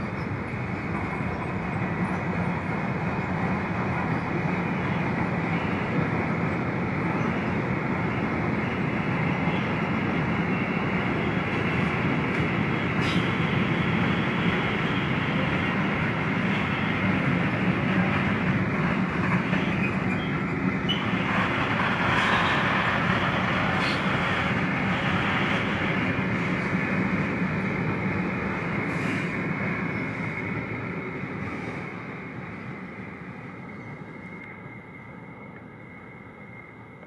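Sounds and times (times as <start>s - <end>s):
freight train wheels rumbling: 0.0s - 37.0s.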